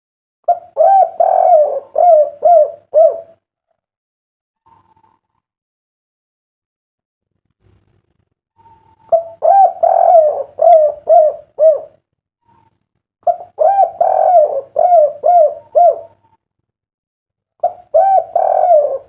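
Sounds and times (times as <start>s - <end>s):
dove cooing: 0.5s - 3.4s, 8.6s - 16.4s, 17.6s - 19.0s.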